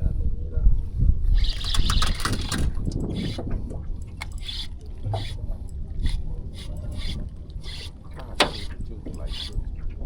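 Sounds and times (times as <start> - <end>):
constant low rumble: 0.0 - 10.0
water splashing and dripping: 1.4 - 7.9.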